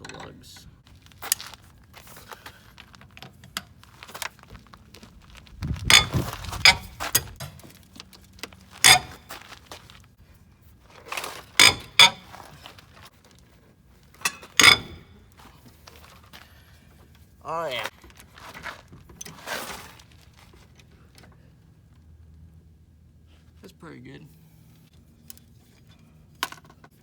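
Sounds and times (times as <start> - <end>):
thuds and rattling: 5.4 - 7.7
lug wrench clanking on lug nuts: 5.8 - 7.6, 8.8 - 9.5, 11.6 - 12.6, 14.2 - 15.3.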